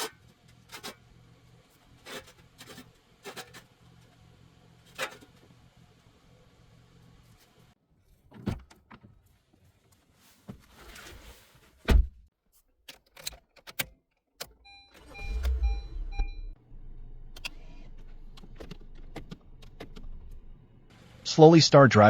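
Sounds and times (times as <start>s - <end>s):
clicks: 13.2s - 16.6s, 17.2s - 20.4s
car engine starting and idling: 14.5s - 21.3s
car door shutting: 14.9s - 20.4s.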